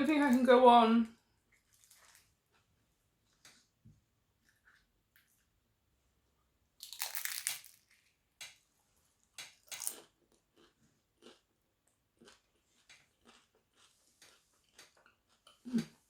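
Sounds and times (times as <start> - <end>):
crunchy food being chewed: 1.6 - 2.7, 6.8 - 8.0, 9.2 - 16.0.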